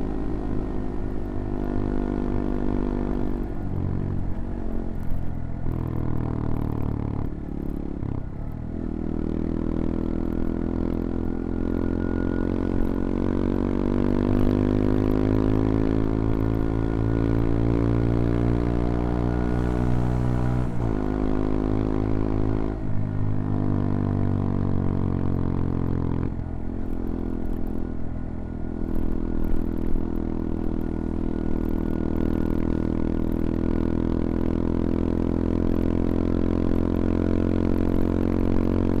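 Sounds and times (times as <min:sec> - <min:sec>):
motorcycle engine revving: 0:08.9 - 0:27.8.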